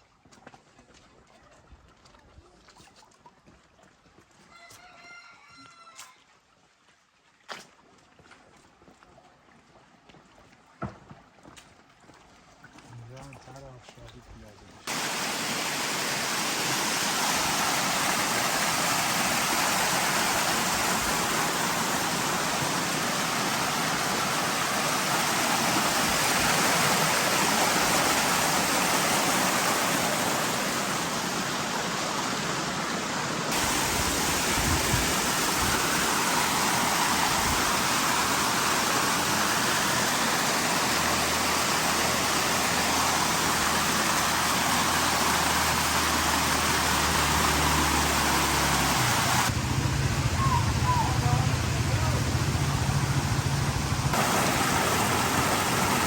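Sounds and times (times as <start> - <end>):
water rushing down stone channel: 14.8 - 56.0.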